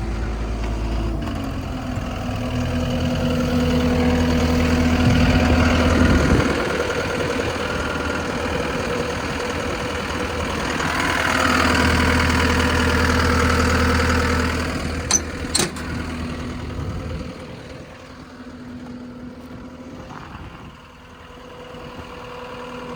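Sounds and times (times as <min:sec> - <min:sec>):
diesel engine running: 0:00.0 - 0:22.9
sharp metal clanks: 0:15.1 - 0:15.9.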